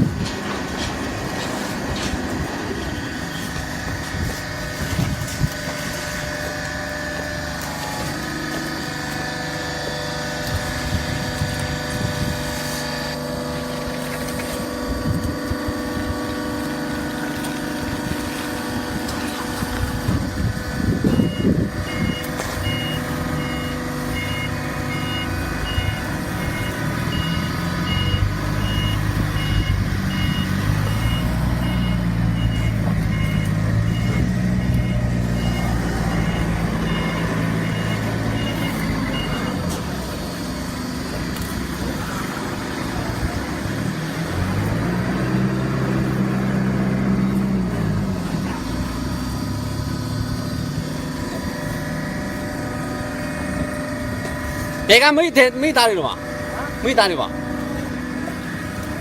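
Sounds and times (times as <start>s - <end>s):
baler machinery humming: 0.0s - 59.0s
heavy vehicle engine: 0.0s - 59.0s
electronic warning beeper: 20.9s - 39.8s.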